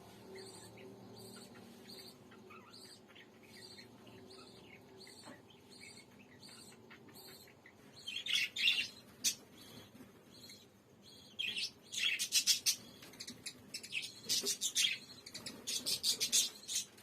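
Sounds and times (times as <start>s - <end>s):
parrot chirping: 0.4s - 9.8s.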